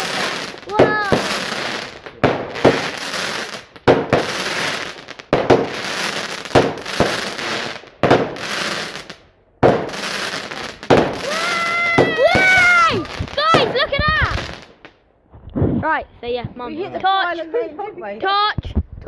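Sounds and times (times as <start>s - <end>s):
firework crackling: 0.0s - 14.9s
firework bangs: 0.0s - 15.0s.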